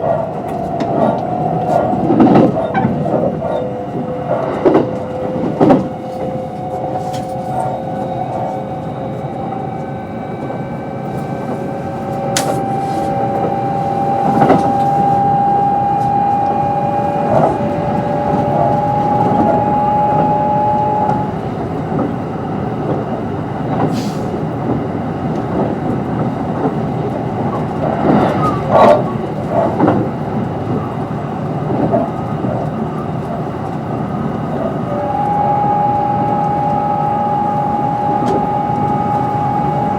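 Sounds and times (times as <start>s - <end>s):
train traction motor whine: 0.0s - 22.1s, 33.0s - 39.9s
train wheel rumble: 0.0s - 39.9s.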